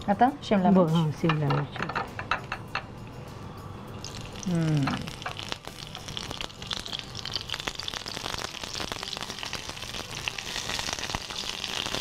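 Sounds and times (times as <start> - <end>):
peppers sizzling in hot oil: 4.0 - 12.0.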